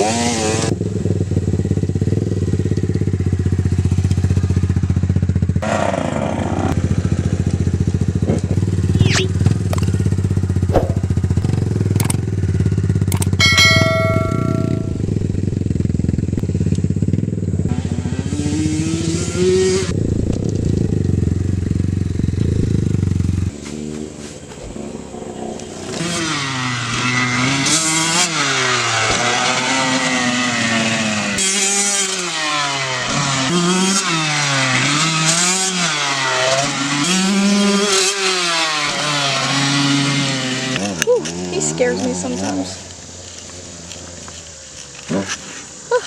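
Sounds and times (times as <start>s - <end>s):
dirt bike engine revving: 17.0s - 42.8s.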